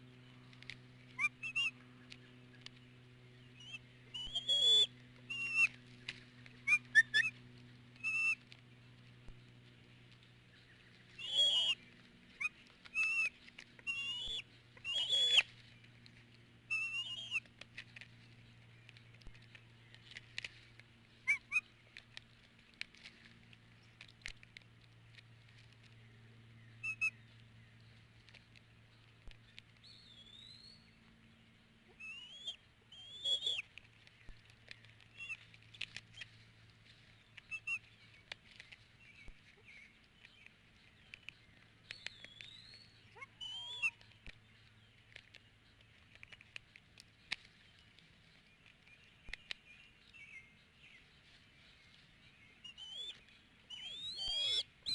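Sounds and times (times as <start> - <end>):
low steady hum: 0.0 - 54.9
birds chirping and whistling: 1.0 - 8.4, 10.5 - 16.0, 16.6 - 17.5, 21.1 - 21.8, 25.9 - 28.0, 29.4 - 31.0, 31.9 - 36.4, 37.2 - 38.3, 39.0 - 46.4, 47.2 - 54.9
sharp clicks: 40.2 - 42.8, 45.1 - 49.6.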